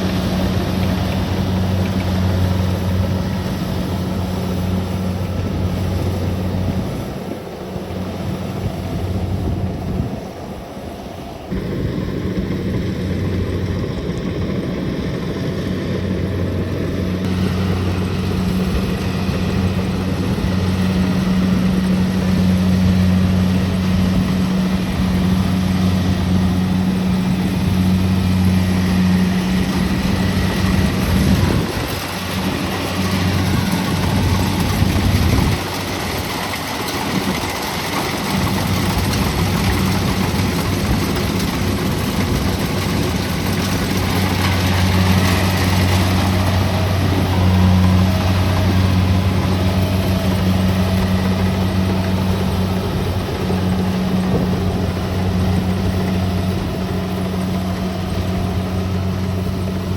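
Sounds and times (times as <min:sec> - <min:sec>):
combine harvester diesel engine: 0:00.0 - 0:59.9.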